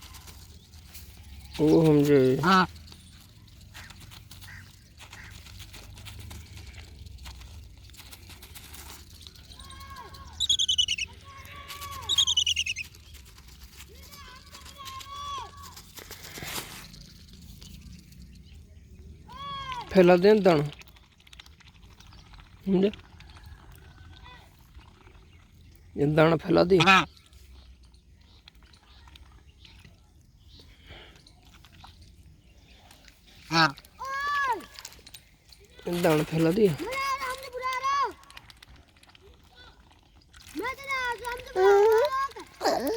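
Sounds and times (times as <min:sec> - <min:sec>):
ducks pecking grain: 0:00.0 - 0:42.9
bird trilling: 0:10.4 - 0:11.1, 0:12.1 - 0:12.9
thin gliding whistles: 0:10.4 - 0:11.2, 0:12.1 - 0:12.9.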